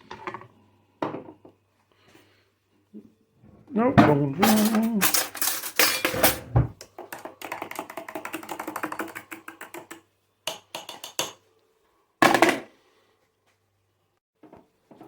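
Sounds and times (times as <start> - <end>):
crockery and utensils clinking: 3.9 - 6.7.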